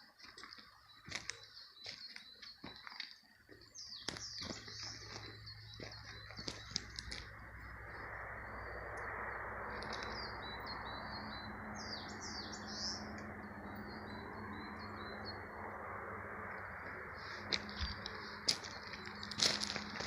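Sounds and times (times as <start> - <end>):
songbirds chirping: 0.0 - 20.0
loud gliding bird calls: 4.4 - 19.9.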